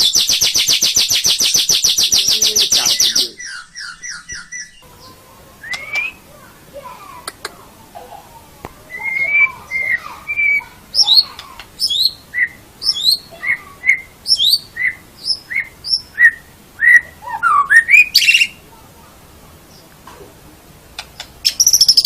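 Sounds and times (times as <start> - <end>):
bird singing clear whistles: 0.0 - 4.8, 5.6 - 6.2, 8.9 - 18.6, 21.4 - 22.0.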